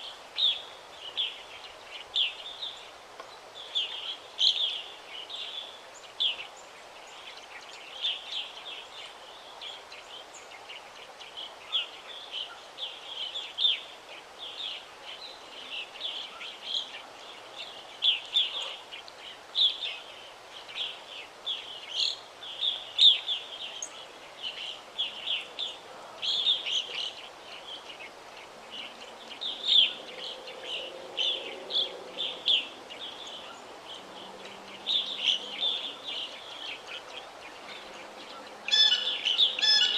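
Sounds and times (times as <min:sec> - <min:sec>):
steady background hiss: 0:00.0 - 0:39.9
small birds chirping: 0:21.5 - 0:39.9.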